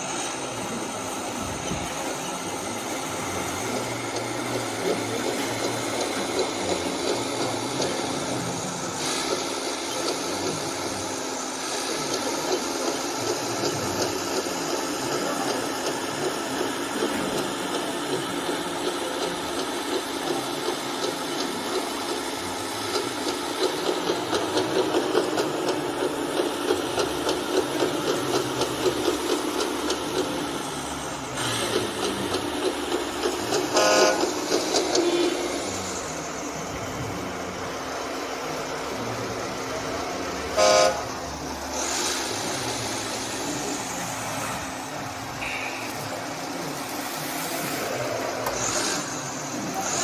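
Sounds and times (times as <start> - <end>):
vehicle engine pulsing: 0.0 - 50.0
vehicle horn tooting: 33.8 - 34.2, 40.6 - 41.0.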